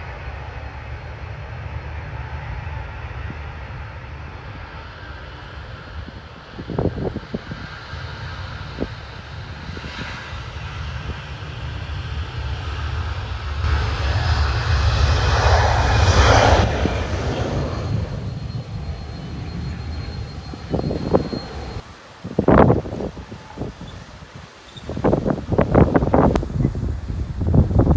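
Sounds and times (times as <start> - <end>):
steady low rumble: 0.0 - 7.4, 8.1 - 21.8
jet airliner passing overhead: 0.0 - 27.9.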